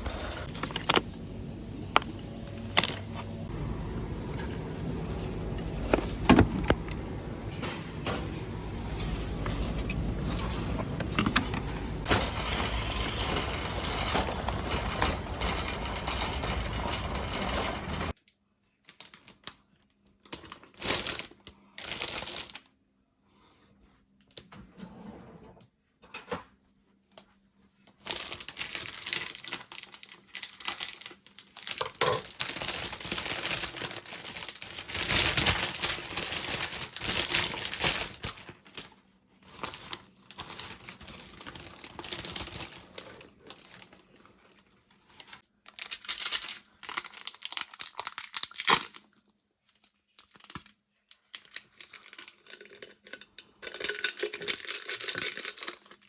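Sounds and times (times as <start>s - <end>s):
packaging crinkling and rustling: 18.8s - 22.7s, 27.9s - 56.0s.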